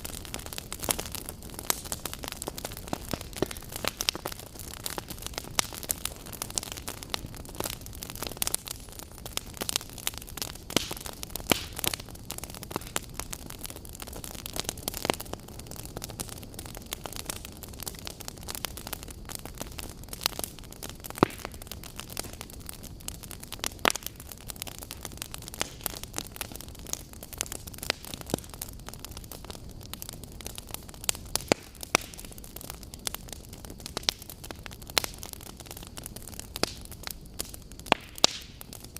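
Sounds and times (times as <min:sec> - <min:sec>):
campfire hissing and crackling: 0:00.0 - 0:38.9.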